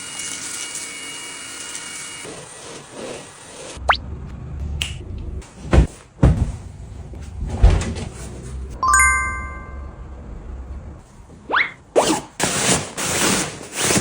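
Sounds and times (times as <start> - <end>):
objects knocking and thumping: 5.6 - 6.7.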